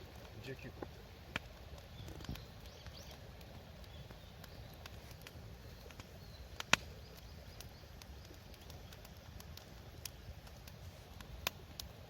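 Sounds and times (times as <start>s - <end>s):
wood fire crackling and popping: 0.0s - 12.0s
faint bird chirps: 5.6s - 9.0s.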